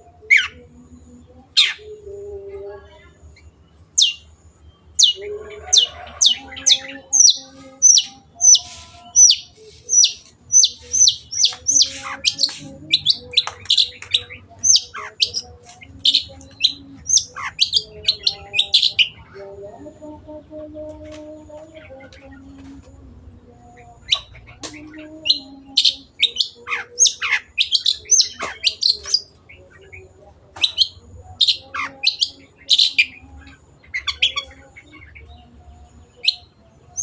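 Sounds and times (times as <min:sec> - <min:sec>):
bird singing sharp high notes: 0:06.6 - 0:19.2.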